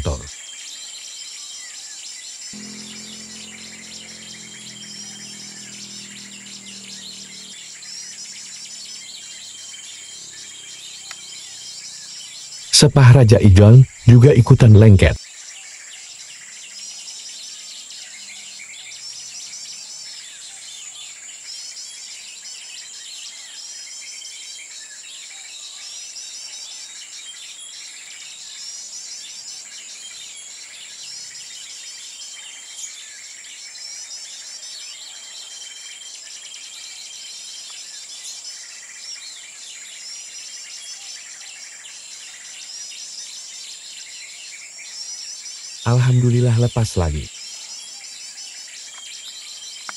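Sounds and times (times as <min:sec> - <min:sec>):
high-pitched insect drone: 0:02.6 - 0:12.6
songbirds chirping: 0:02.6 - 0:15.2, 0:45.8 - 0:49.9.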